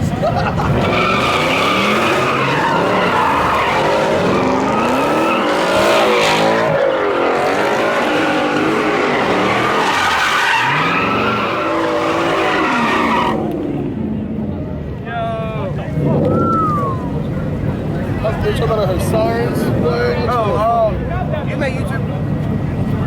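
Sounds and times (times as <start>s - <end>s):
car engine revving hard: 0.4s - 14.1s
tyres screeching: 0.7s - 13.5s.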